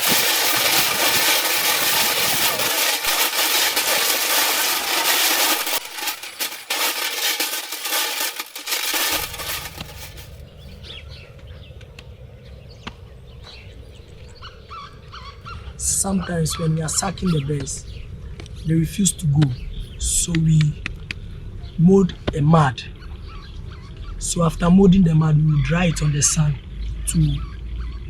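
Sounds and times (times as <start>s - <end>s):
cans with stones rattling: 0.0s - 10.4s.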